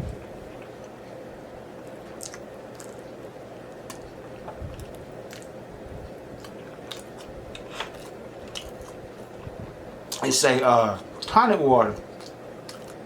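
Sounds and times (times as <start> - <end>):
faint steady hum: 0.0 - 13.0
chewing: 2.1 - 10.3, 12.0 - 13.0.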